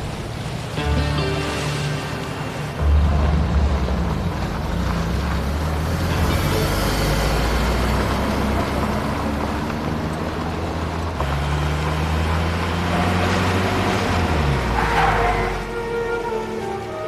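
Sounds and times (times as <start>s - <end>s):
deep engine rumble: 0.0s - 12.4s.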